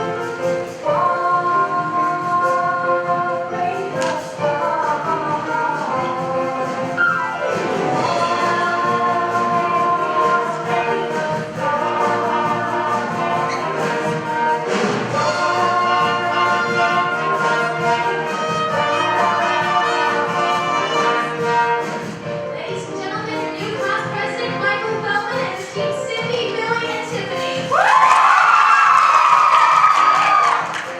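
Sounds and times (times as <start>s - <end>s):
orchestral brass music: 0.0s - 22.7s.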